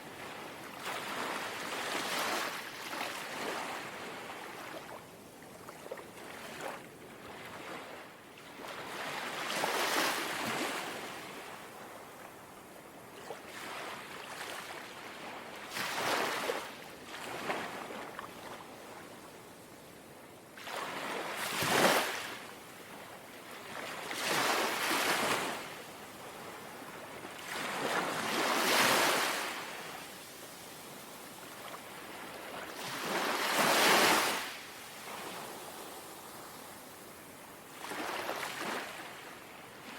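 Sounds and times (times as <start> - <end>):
gentle sea waves lapping: 20.6 - 39.9.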